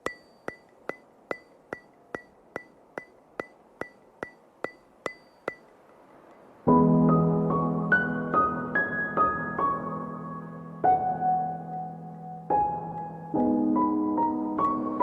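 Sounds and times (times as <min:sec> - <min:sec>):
sharp ringing ticks: 0:00.0 - 0:06.5
soft keyboard music: 0:06.7 - 0:15.0.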